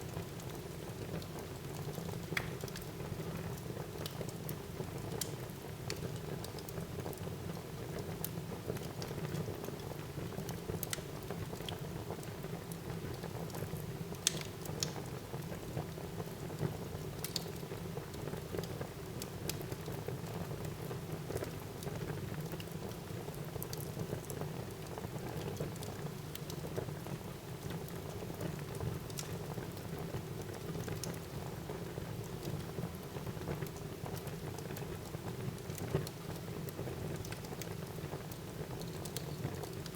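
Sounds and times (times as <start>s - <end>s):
wood crackling and popping: 14.2s - 15.0s, 16.6s - 17.8s, 33.5s - 39.9s.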